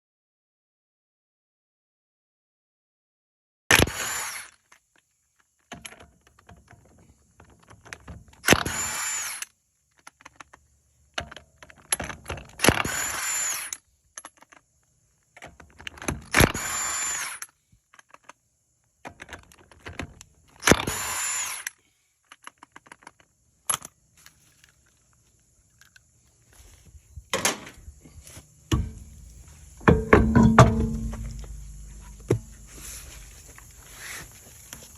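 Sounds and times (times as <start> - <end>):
power tool spinning up: 3.9 - 4.6, 8.4 - 9.4, 12.6 - 13.8, 16.3 - 17.5, 20.6 - 21.8
small clicks and rattles: 4.6 - 8.6, 9.9 - 12.8, 14.1 - 16.5, 17.4 - 20.8, 21.6 - 26.2.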